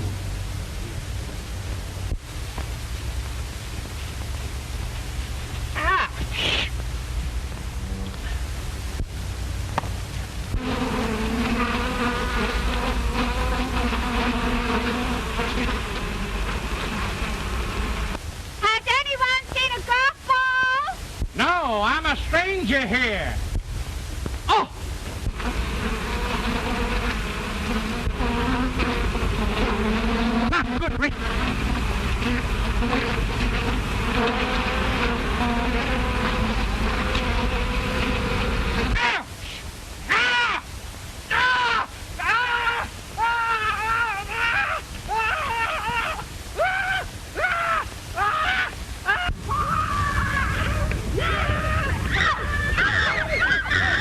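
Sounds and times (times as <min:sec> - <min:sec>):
soundtrack hiss and hum: 0:00.0 - 0:54.0
bees buzzing: 0:10.4 - 0:18.2, 0:25.2 - 0:39.1.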